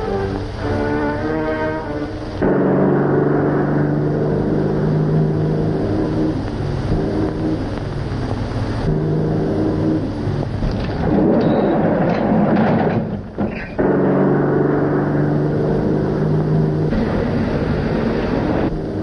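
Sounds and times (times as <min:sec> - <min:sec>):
car engine running at speed: 0:02.4 - 0:11.4, 0:13.8 - 0:19.0.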